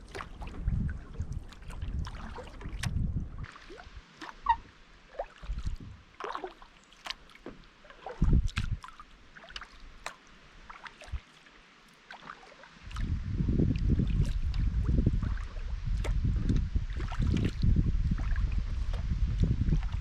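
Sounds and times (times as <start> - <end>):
paddle splashing in water: 0.0 - 20.0
water dripping off paddle: 0.0 - 20.0
low rumble: 12.9 - 20.0.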